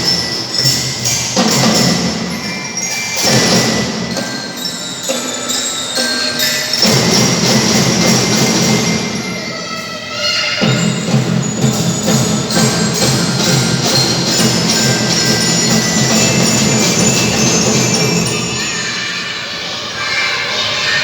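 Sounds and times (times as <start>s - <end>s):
marching drum band: 0.0s - 5.6s, 6.7s - 9.5s, 10.6s - 18.8s
bell-like melody: 0.0s - 19.7s.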